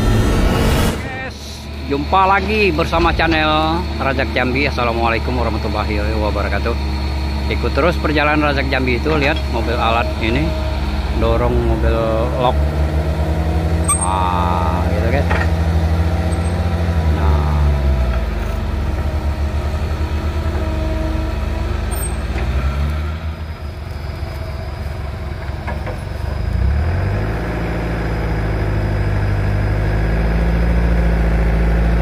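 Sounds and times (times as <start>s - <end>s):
heavy diesel engine under load: 0.0s - 32.0s.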